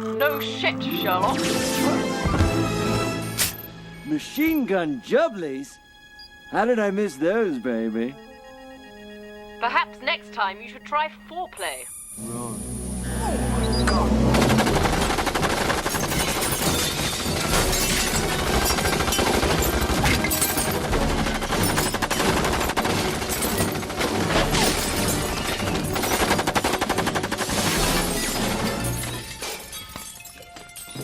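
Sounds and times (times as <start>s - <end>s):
background music: 0.0s - 31.0s
machine-gun fire: 14.2s - 28.9s.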